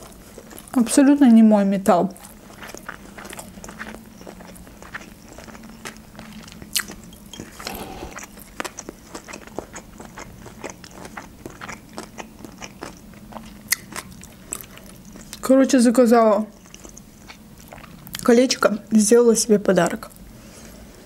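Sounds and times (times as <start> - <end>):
person chewing food: 0.0 - 0.8, 2.2 - 15.4, 16.5 - 18.2.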